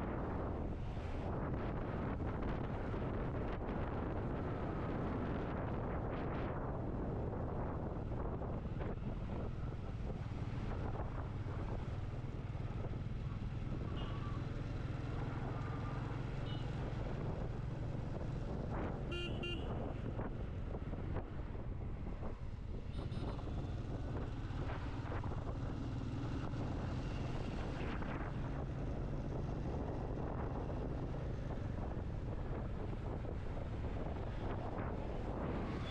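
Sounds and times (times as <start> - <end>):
wind rushing over microphone: 0.0 - 14.0, 16.8 - 35.9
motorcycle engine cruising: 6.4 - 35.9
vehicle horn: 19.1 - 19.9.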